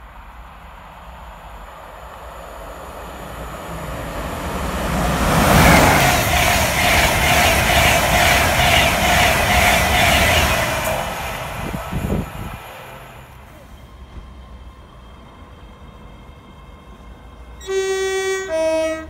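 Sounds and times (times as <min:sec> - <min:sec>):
express train rushing past: 0:00.0 - 0:19.0
train whine: 0:00.0 - 0:19.0.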